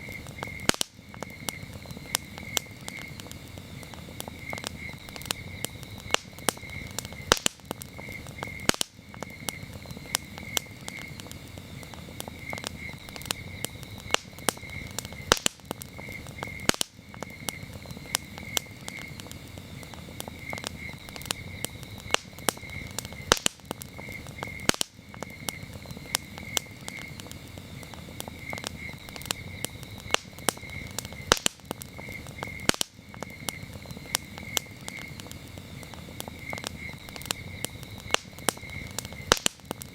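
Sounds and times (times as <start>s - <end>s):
campfire crackling and popping: 0.0s - 39.9s
crickets chirping: 0.0s - 39.9s.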